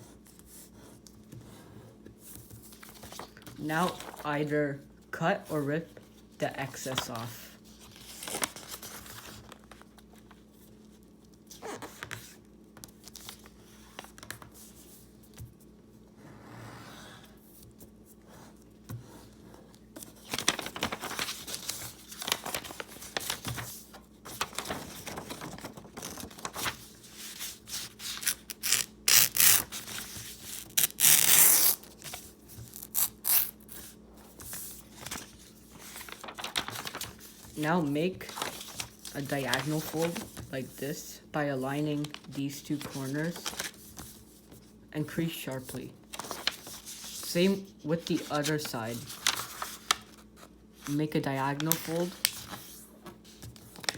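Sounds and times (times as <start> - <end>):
paper rustling: 2.2 - 4.3, 5.5 - 15.6, 17.6 - 40.8, 41.8 - 44.8, 45.5 - 53.9
paper tearing: 24.4 - 32.1, 32.7 - 33.9.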